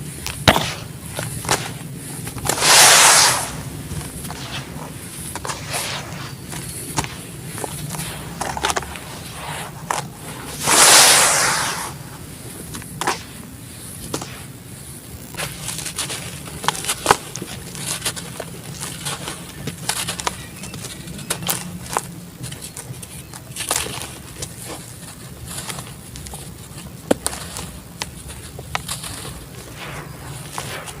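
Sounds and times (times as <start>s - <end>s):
cement chunks crackling and crunching: 15.1s - 31.0s.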